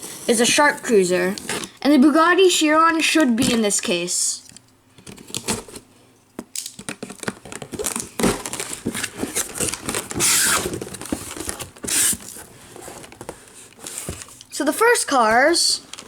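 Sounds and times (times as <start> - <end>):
packaging crinkling and rustling: 5.0 - 14.6, 15.2 - 16.0.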